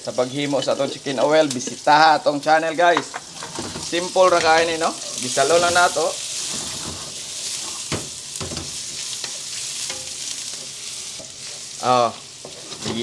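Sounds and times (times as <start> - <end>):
garlic sizzling in hot oil: 0.0 - 13.0
wooden spatula scraping a wok: 3.1 - 8.0, 12.4 - 13.0.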